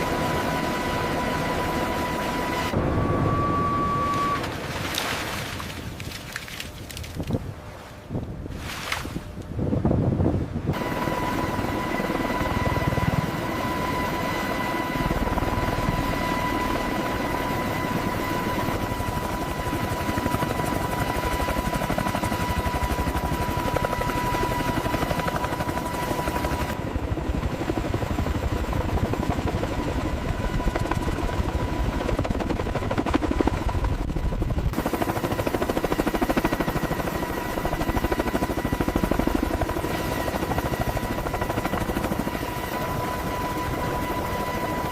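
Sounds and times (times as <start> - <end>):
helicopter rotor and engine: 0.0 - 5.0, 9.2 - 44.9
thin high whine: 2.3 - 4.9.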